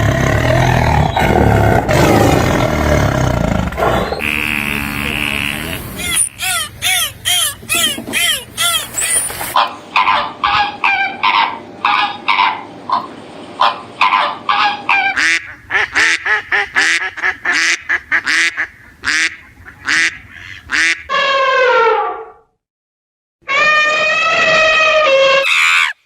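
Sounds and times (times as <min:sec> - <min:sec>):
rapid bird calls: 0:04.1 - 0:09.6
bird call falling in pitch: 0:04.2 - 0:09.5, 0:25.4 - 0:26.0.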